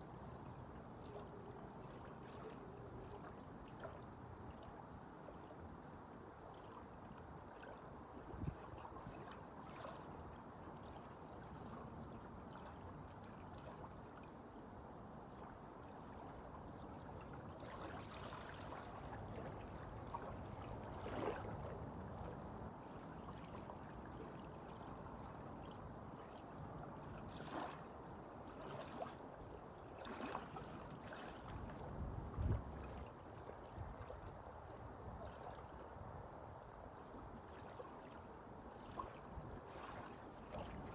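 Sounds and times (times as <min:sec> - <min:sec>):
small waves lapping and splashing: 0:00.0 - 0:40.9
wind: 0:00.0 - 0:40.9.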